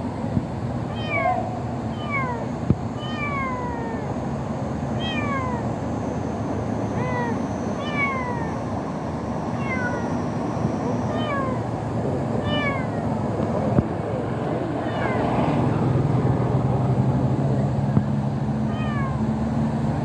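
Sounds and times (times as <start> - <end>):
kitten meowing: 0.9 - 4.2, 5.0 - 5.7, 6.9 - 8.6, 9.6 - 10.2, 11.1 - 11.7, 12.4 - 13.1, 14.8 - 15.3, 18.7 - 19.2.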